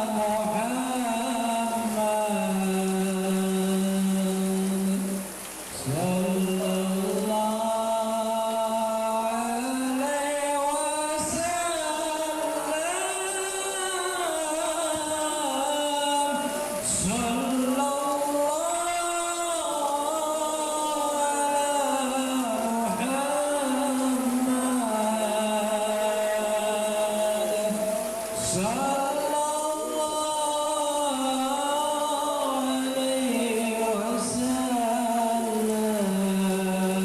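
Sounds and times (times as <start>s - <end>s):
voices chanting in unison: 0.0s - 37.0s.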